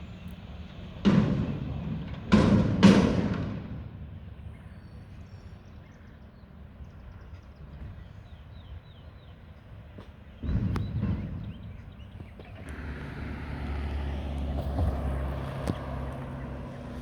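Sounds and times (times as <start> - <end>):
low outdoor rumble: 10.4 - 17.0.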